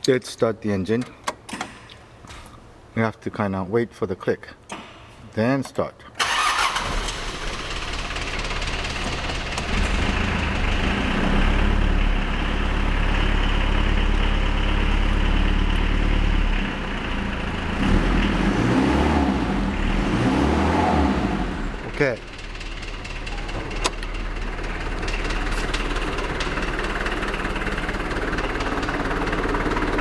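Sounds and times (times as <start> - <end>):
diesel engine idling: 6.2 - 30.0.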